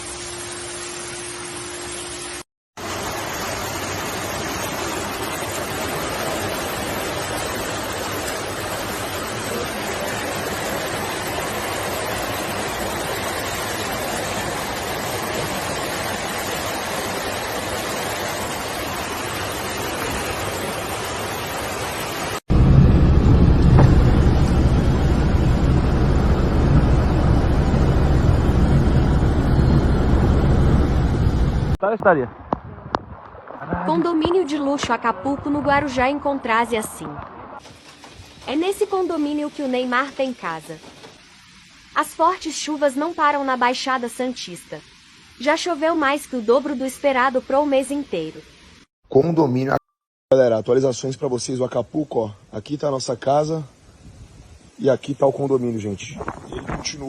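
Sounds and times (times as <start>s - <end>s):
rushing water in heavy rain: 0.0s - 31.8s, 32.4s - 48.9s, 52.9s - 57.0s
deep rumbling noise: 22.5s - 31.8s.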